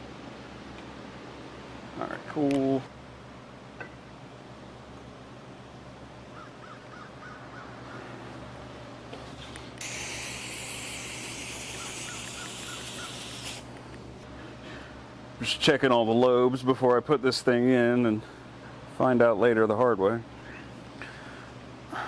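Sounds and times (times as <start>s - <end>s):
steady electrical hum: 0.0s - 22.0s
aerosol spray hissing: 9.8s - 13.7s.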